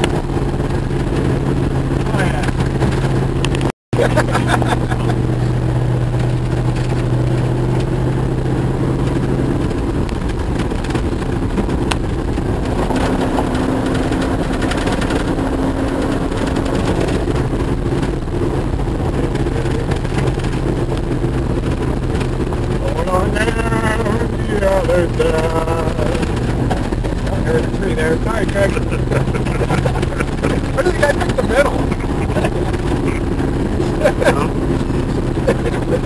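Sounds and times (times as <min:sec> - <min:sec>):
engine drone inside cab: 0:00.0 - 0:36.0
road noise: 0:00.0 - 0:36.0
body knocks and rattles: 0:25.4 - 0:27.8, 0:28.4 - 0:36.0.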